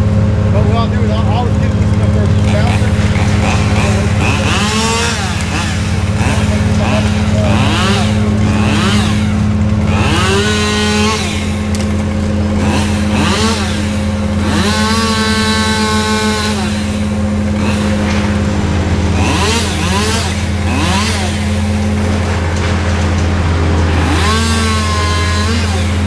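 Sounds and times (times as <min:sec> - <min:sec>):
chainsaw revving: 0:00.0 - 0:26.0
engine droning: 0:00.0 - 0:26.0.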